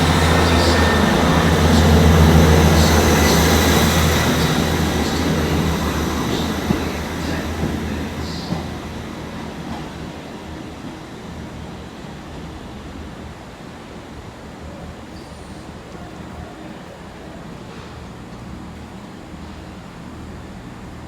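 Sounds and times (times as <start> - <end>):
wheels clicking on track: 0.0 - 9.9
train engine drone: 0.0 - 21.0.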